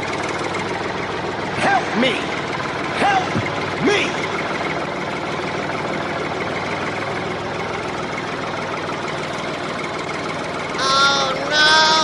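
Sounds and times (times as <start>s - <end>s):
small tractor engine droning: 0.0s - 12.0s.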